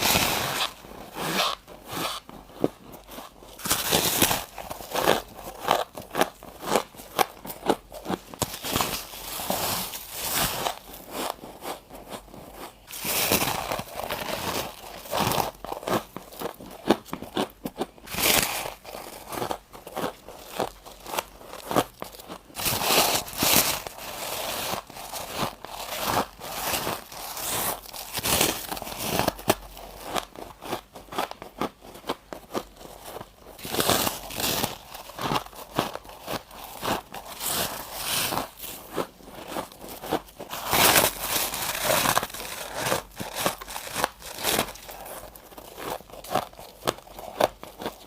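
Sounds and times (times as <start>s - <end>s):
crunching frost chunks: 3.6s - 11.3s, 12.9s - 17.5s, 33.6s - 48.0s.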